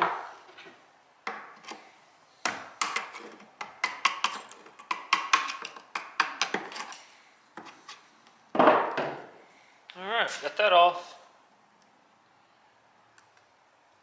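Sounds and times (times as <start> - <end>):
chisel knocking on wood: 3.6 - 6.7.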